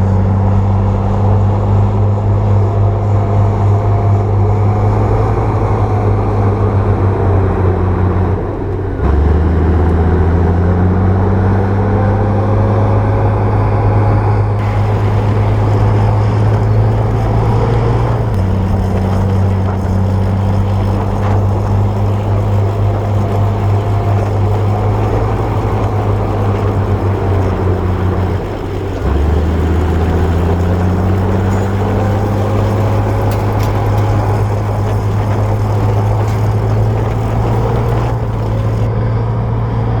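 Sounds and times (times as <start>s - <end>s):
bulldozer engine running: 14.6s - 40.0s.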